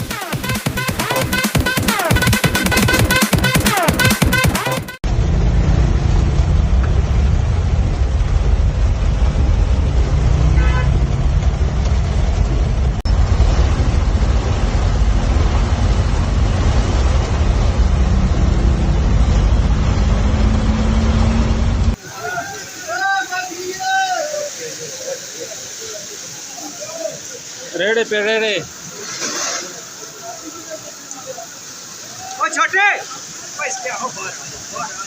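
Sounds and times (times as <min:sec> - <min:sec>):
road traffic rumble: 0:05.0 - 0:22.2
car horn toot: 0:10.6 - 0:11.0.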